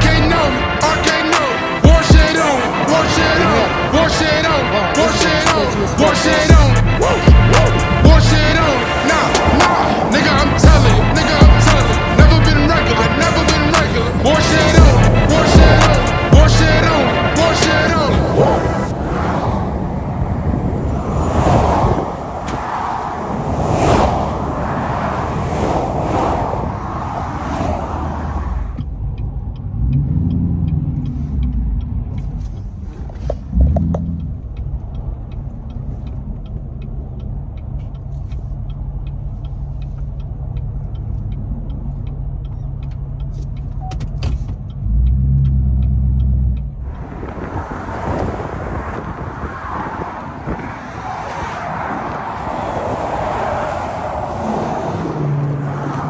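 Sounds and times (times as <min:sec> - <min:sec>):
vehicle engine idling: 0:00.0 - 0:18.1, 0:28.7 - 0:48.0
highway traffic rushing past: 0:00.0 - 0:56.0
wind noise: 0:01.8 - 0:28.8, 0:46.8 - 0:56.0
faint ticking: 0:04.0 - 0:17.8, 0:28.8 - 0:47.2.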